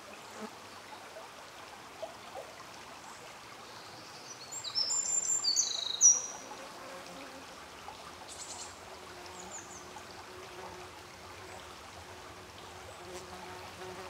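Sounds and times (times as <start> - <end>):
faint trickling water: 0.0 - 14.0
faint insect buzz: 8.3 - 14.0.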